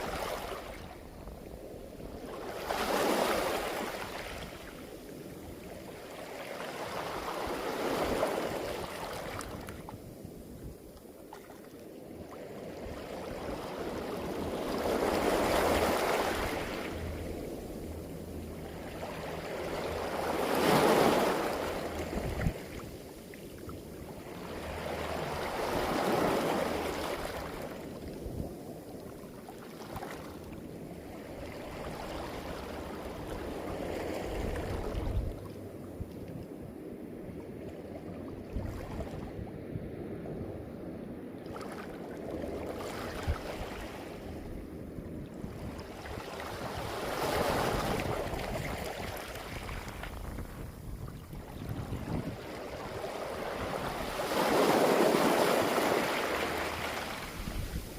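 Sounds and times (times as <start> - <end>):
waves rushing over pebbles: 0.0 - 1.1, 51.6 - 57.9.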